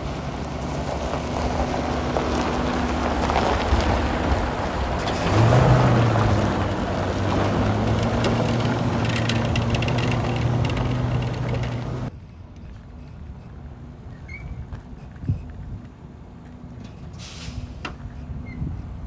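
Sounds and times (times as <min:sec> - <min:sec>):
truck diesel engine humming: 0:00.0 - 0:12.1.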